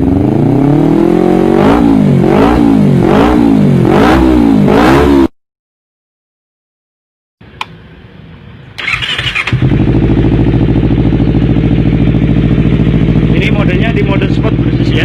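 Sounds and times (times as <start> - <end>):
motorcycle engine revving: 0.0 - 5.4, 8.8 - 15.0
click: 7.6 - 7.8
engine idling: 8.8 - 15.0.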